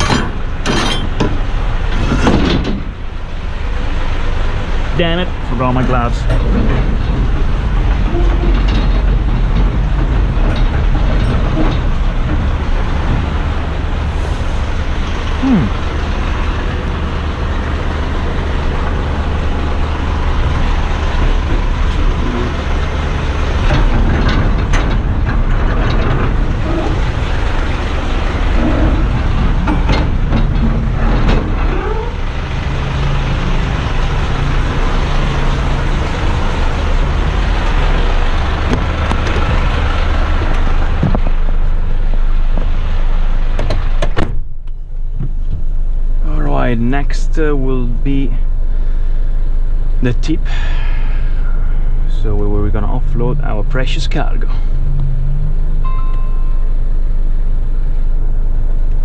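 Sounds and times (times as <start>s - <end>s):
sharp metal clanks: 0.0s - 2.9s, 54.4s - 56.8s
diesel truck engine running: 0.0s - 59.0s.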